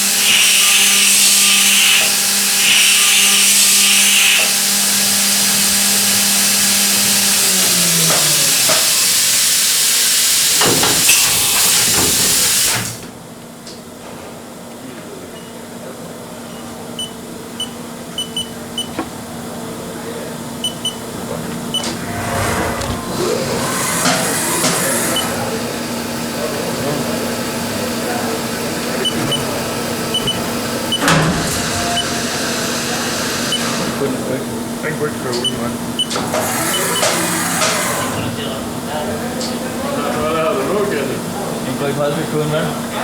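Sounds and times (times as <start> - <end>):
milling machine hissing: 0.0 - 13.0, 21.7 - 34.2
machine hum sliding down: 21.7 - 25.7.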